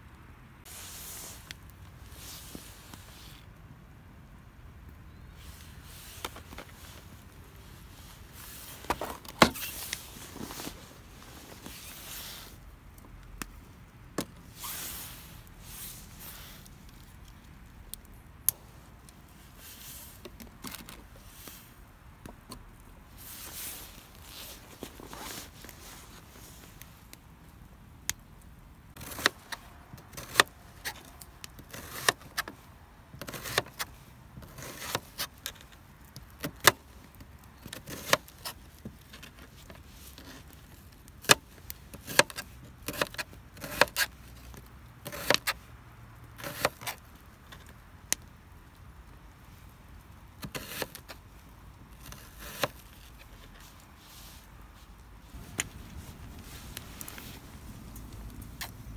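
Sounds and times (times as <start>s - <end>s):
rustling: 0.6s - 3.6s, 5.2s - 27.6s, 28.9s - 58.9s.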